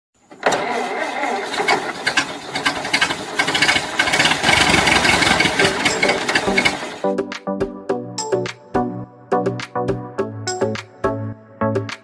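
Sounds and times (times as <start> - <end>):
engine rattling and knocking: 1.0 - 7.0.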